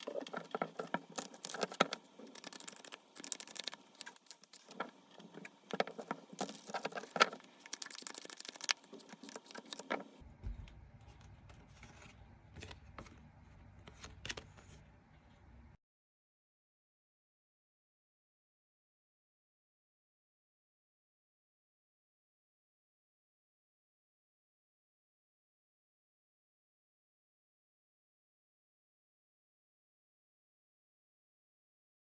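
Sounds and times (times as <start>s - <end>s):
cards shuffling: 0.0s - 10.2s.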